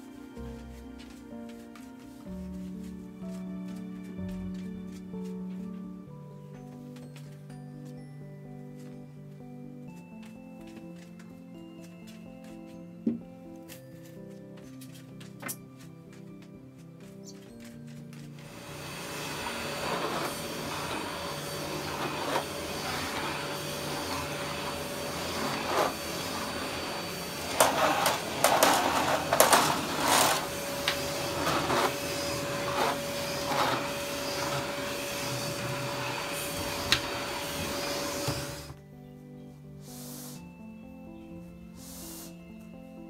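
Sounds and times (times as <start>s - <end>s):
floor-cleaning machine motor whining: 18.4s - 38.8s.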